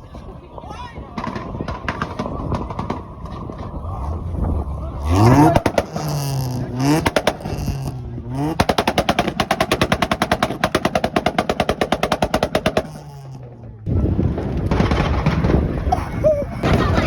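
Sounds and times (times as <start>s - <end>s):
rapid exhaust pops: 1.2s - 16.0s
car engine revving: 2.0s - 13.9s.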